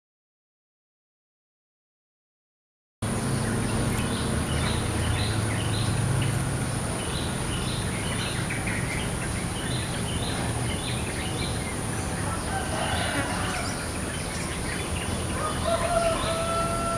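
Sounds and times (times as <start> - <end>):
songbirds chirping: 3.0 - 16.9.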